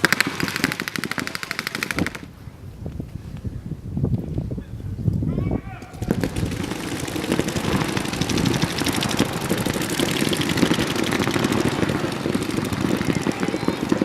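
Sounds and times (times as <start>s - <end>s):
paintball markers firing rapidly: 0.0s - 2.3s, 5.8s - 14.0s.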